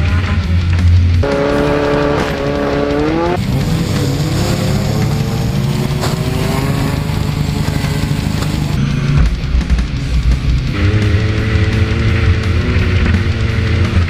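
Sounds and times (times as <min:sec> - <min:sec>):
car engine revving: 0:00.0 - 0:14.0
sharp knock: 0:01.2 - 0:03.4.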